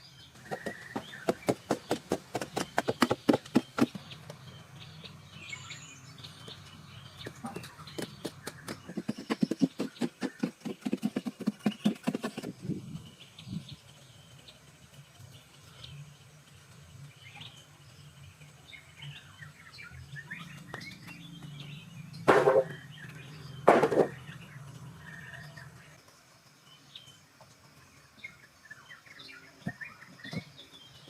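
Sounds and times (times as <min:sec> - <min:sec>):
fast rhythmic strokes: 0:00.4 - 0:04.0, 0:07.3 - 0:12.7.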